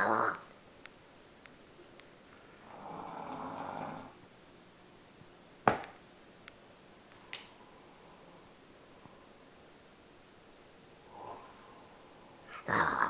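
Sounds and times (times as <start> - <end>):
dog snoring: 2.6 - 4.2.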